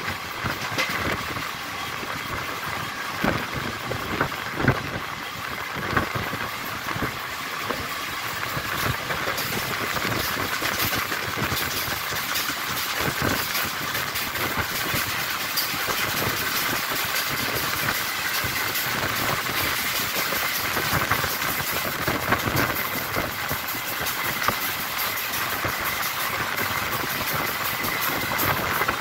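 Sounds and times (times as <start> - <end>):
train running: 0.0 - 29.0
sharp knocks and clanks: 0.4 - 1.2.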